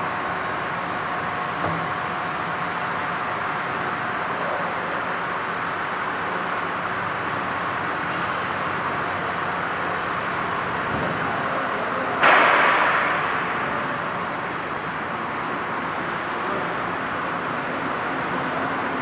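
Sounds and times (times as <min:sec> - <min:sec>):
milling machine running: 0:00.0 - 0:19.0
faint high whine: 0:06.9 - 0:11.6.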